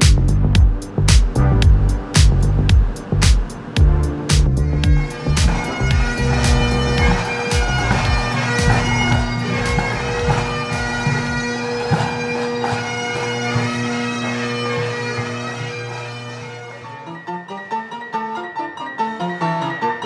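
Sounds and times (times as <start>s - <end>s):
bagpipes playing: 2.9s - 17.3s.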